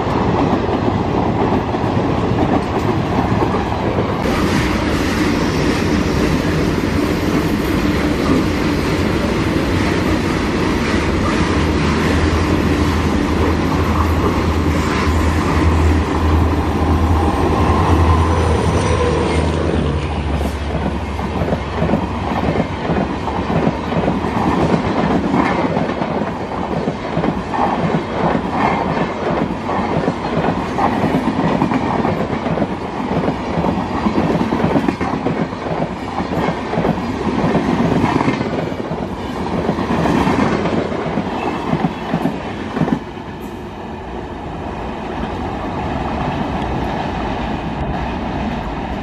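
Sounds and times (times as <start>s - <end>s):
train rushing noise: 0.0s - 49.0s.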